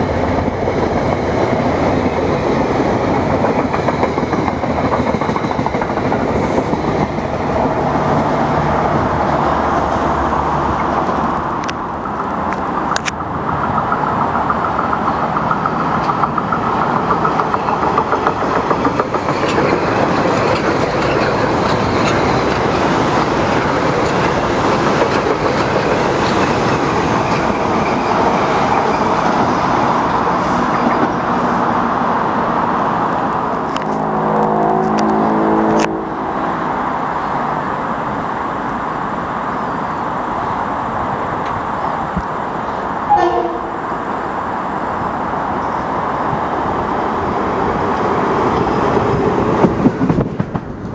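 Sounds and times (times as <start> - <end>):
train wheel-on-rail noise: 0.0 - 50.9
sharp rail clicks: 10.7 - 28.4, 47.9 - 50.9.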